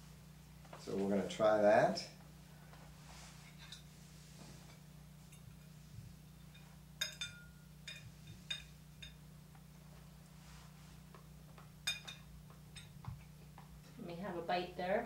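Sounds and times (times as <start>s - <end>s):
low steady hum: 0.0s - 15.0s
cutlery clinking on a plate: 6.4s - 9.2s, 11.8s - 13.1s.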